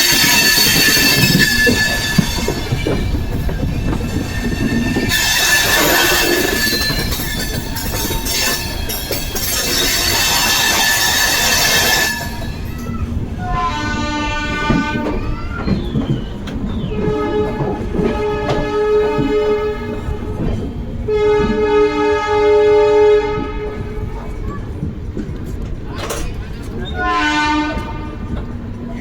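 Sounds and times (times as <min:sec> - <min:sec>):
train wheels squealing on rails: 0:00.0 - 0:13.2, 0:14.6 - 0:21.1, 0:25.4 - 0:29.0
train rail noise: 0:00.0 - 0:29.0
train horn: 0:05.0 - 0:06.8, 0:13.4 - 0:15.3, 0:16.8 - 0:24.2, 0:27.0 - 0:28.4.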